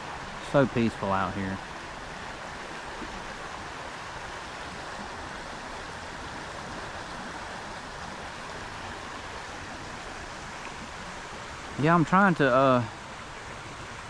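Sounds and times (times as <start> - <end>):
creek water babbling: 0.0 - 14.0.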